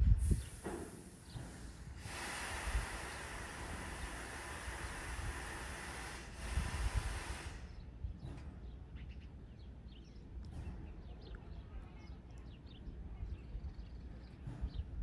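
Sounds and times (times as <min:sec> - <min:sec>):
loud hiss: 0:00.0 - 0:07.8
birds chirping: 0:00.3 - 0:01.8, 0:07.6 - 0:15.0.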